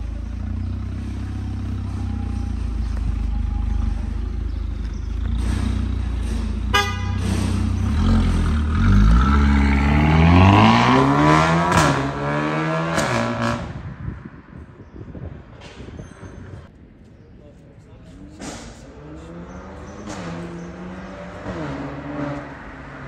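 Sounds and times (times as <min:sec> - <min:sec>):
vehicle engine running and revving: 0:00.0 - 0:14.3, 0:18.9 - 0:23.0
short horn toot: 0:06.7 - 0:07.4.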